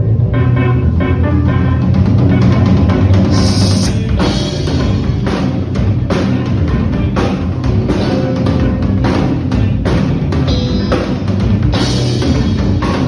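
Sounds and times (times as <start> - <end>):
rock band playing: 0.0 - 13.0
drum-kit strikes: 1.8 - 13.0
cymbal crash: 3.3 - 4.1.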